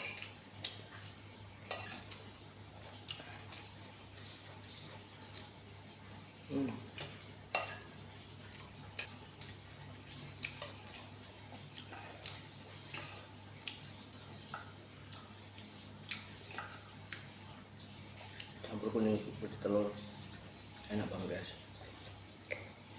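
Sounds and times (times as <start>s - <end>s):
cutlery clinking against bowl: 1.6s - 2.2s, 7.0s - 7.9s, 10.5s - 11.1s.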